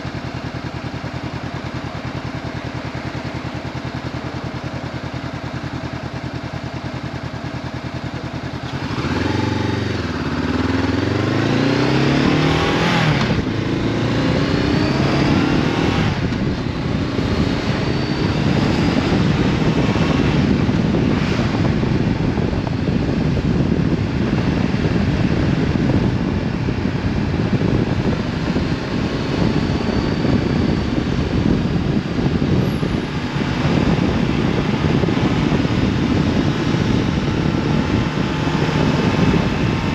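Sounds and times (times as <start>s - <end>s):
motorcycle engine revving: 0.0s - 39.9s
wind rush: 8.8s - 39.9s.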